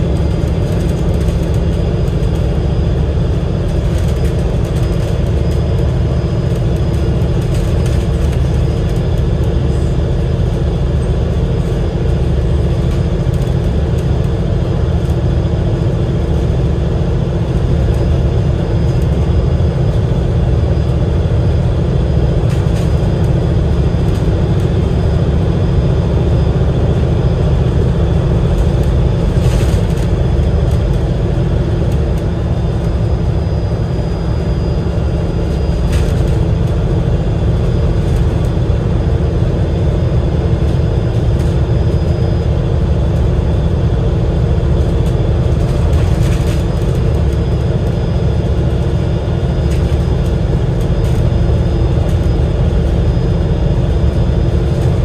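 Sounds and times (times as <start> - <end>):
bus engine droning: 0.0 - 55.0.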